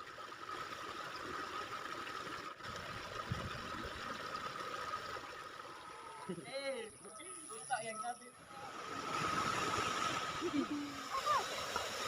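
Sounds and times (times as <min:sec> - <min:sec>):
thin steady tone: 0:00.0 - 0:12.0
waterfall rushing: 0:08.8 - 0:12.0.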